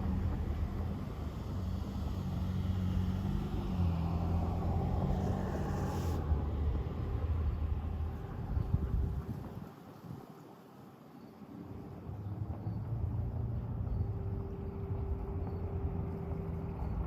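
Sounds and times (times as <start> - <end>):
wind noise: 0.0 - 10.3.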